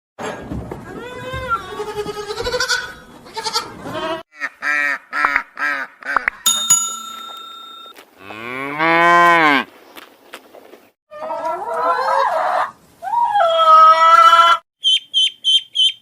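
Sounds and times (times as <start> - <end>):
ringing bell-like tone: 6.5 - 8.0.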